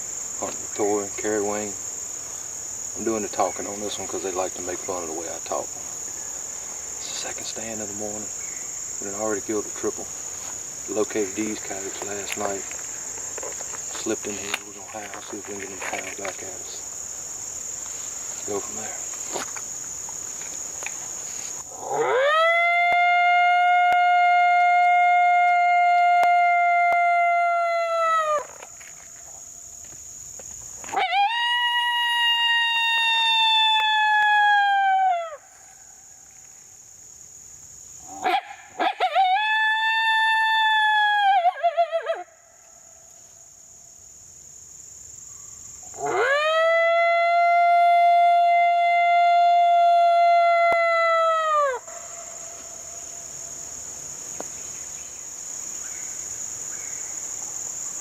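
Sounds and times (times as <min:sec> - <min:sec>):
crickets buzzing: 0:00.0 - 0:58.0
coyote howl call: 0:21.7 - 0:28.7, 0:30.9 - 0:35.6, 0:38.1 - 0:42.6, 0:45.9 - 0:52.8.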